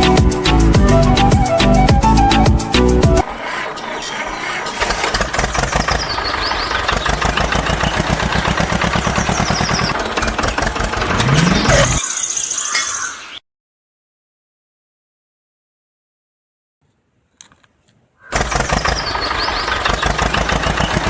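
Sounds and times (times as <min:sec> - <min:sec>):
engine chugging: 0:00.0 - 0:12.0, 0:18.3 - 0:21.0.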